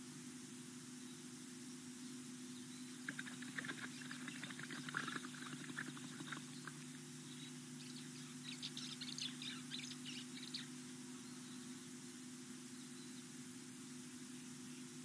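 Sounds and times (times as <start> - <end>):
steady low hum: 0.0 - 15.0
small birds chirping: 2.0 - 12.0, 12.7 - 13.4.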